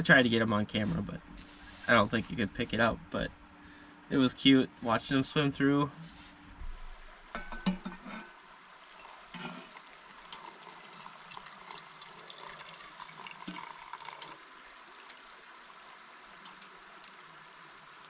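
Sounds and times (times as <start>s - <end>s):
river water running: 8.4s - 18.0s.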